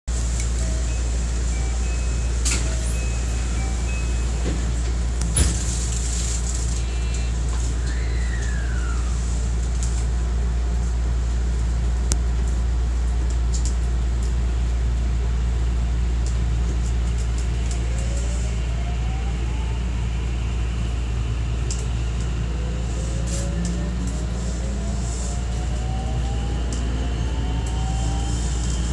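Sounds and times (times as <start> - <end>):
train cabin rumble: 0.1 - 28.9
train clunk: 0.4 - 8.7
inverter whine rising in pitch: 6.5 - 9.5, 17.6 - 28.9.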